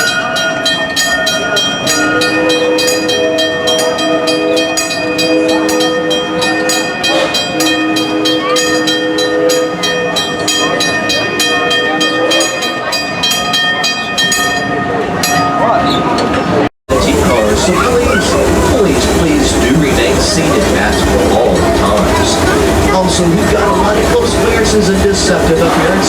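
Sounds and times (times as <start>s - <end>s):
steam train chuffing: 0.2s - 13.1s, 16.9s - 26.0s
steady ringing tones: 16.9s - 26.0s.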